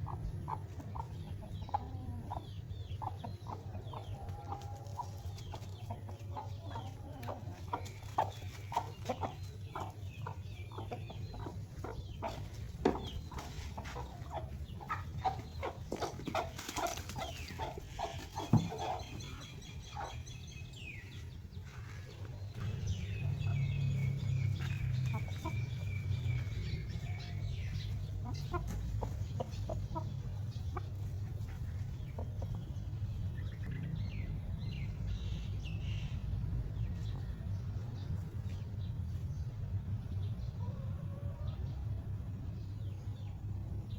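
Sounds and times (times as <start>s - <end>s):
chickens clucking: 0.0s - 43.9s
low rumble: 19.5s - 30.7s.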